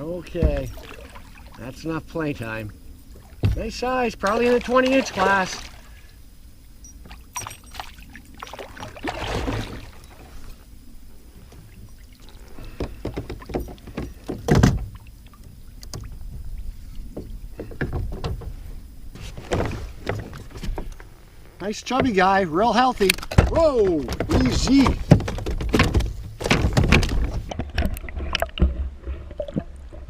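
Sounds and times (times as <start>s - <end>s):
water splashing: 0.0s - 6.2s, 6.9s - 17.6s
knocks and clicks in a kayak: 0.2s - 1.0s, 3.4s - 5.5s, 11.4s - 30.0s.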